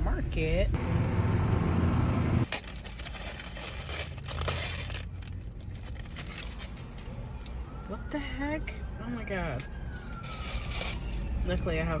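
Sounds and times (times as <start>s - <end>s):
food wrapper crinkling: 2.5s - 7.4s.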